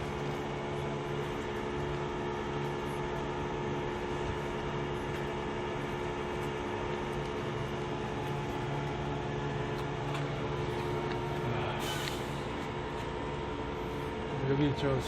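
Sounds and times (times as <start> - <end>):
steady mechanical hum: 0.0 - 15.0
short hiss: 11.8 - 12.4.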